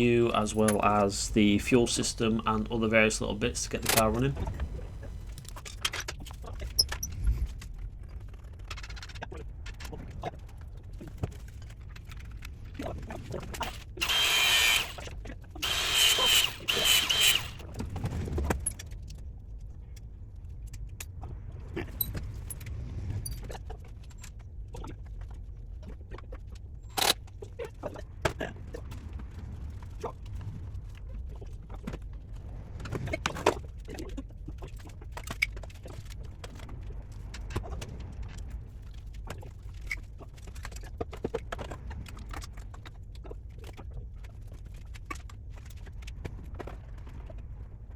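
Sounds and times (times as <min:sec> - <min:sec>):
hissing or whirring bursts: 0:14.0 - 0:15.0, 0:15.6 - 0:17.6
metal tools clinking: 0:15.9 - 0:17.6.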